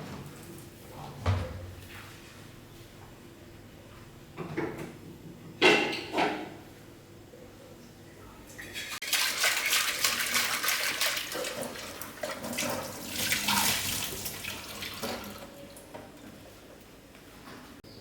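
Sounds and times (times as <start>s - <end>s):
water running from a tap: 8.8s - 15.6s.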